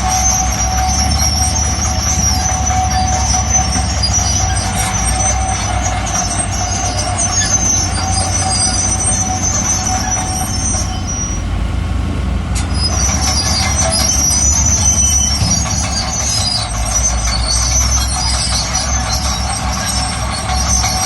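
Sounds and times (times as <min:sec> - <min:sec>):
crawler tracks squealing: 0:00.0 - 0:11.6, 0:12.6 - 0:21.0
diesel engine rumble: 0:00.0 - 0:21.0.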